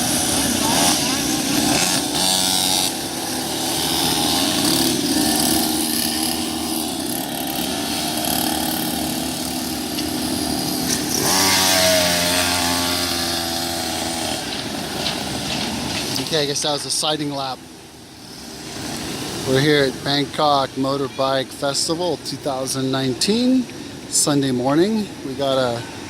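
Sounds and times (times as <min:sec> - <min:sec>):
motorbike passing close: 0:00.0 - 0:17.4
pit bike engines running: 0:00.0 - 0:26.0.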